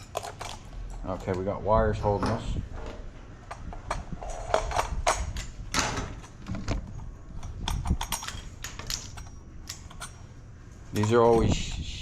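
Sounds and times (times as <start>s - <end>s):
clicks and knocks of lamp parts: 3.5s - 10.2s.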